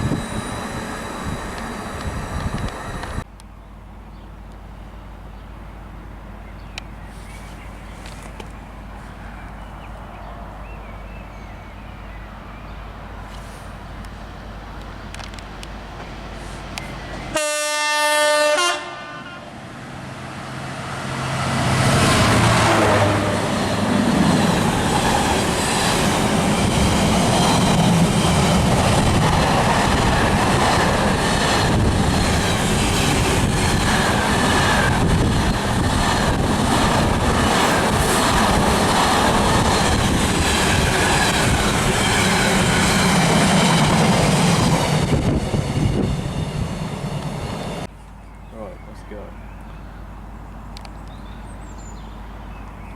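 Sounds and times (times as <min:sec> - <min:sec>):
train passing rushing: 0:00.0 - 0:03.3, 0:08.6 - 0:47.9
train horn: 0:17.3 - 0:19.6, 0:22.5 - 0:23.5.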